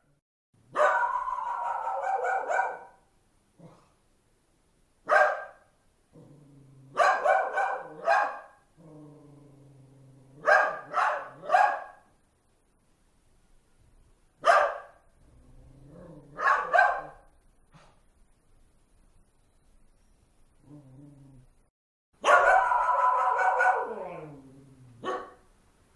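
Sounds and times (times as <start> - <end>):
dog barking sharply: 0.7 - 3.0, 5.1 - 5.6, 7.0 - 8.6, 10.4 - 12.1, 14.4 - 15.0, 16.4 - 17.2, 22.2 - 24.0, 25.0 - 25.4
dog growling: 3.6 - 4.0, 6.1 - 7.0, 8.8 - 10.5, 15.2 - 16.4, 20.6 - 21.6, 23.8 - 25.1.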